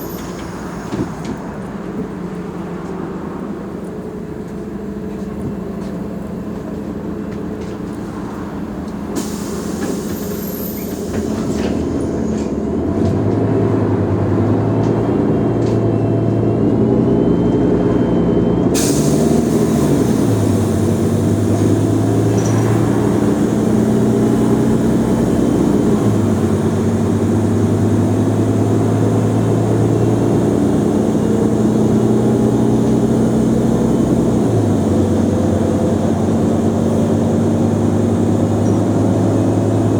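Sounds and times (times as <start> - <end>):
bus diesel engine pulling away: 0.0 - 39.9
air brake hiss: 9.2 - 11.7, 18.8 - 21.6.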